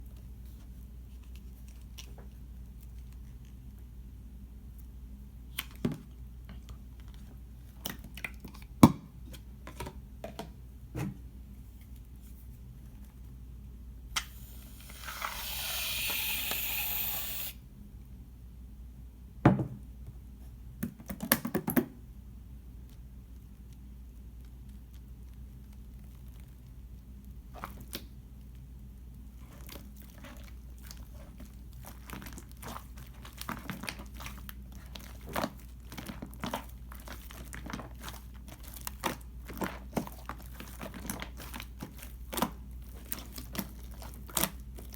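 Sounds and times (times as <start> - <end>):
aerosol can spraying: 14.2 - 17.6.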